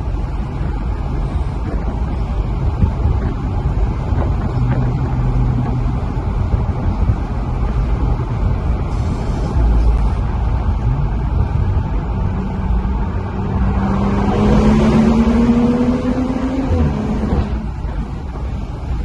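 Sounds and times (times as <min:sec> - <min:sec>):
car engine accelerating: 0:00.0 - 0:19.0
road rumble: 0:00.0 - 0:19.0.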